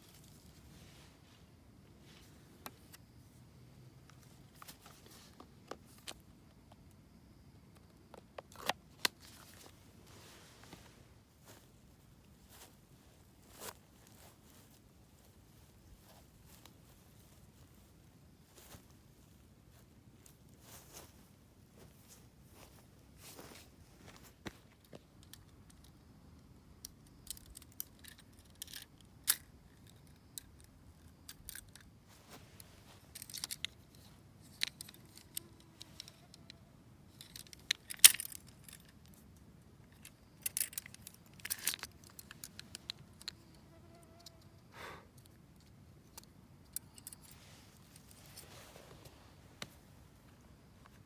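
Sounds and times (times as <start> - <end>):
camp gear rustling: 0.0 - 6.3, 8.5 - 25.0, 32.0 - 36.3, 46.9 - 51.0.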